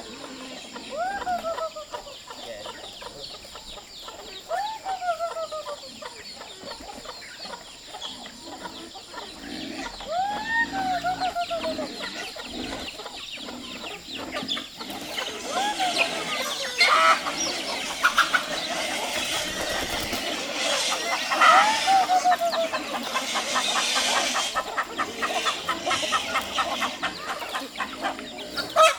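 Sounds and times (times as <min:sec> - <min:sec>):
chickens clucking: 0:00.0 - 0:28.9
rooster crowing: 0:21.2 - 0:24.6.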